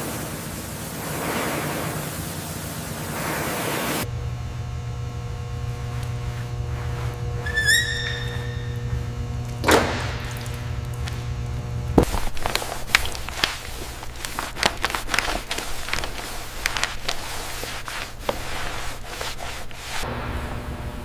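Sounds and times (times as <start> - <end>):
low machine hum: 0.0 - 21.0
hand scraping and rubbing: 5.7 - 9.2, 12.0 - 20.1.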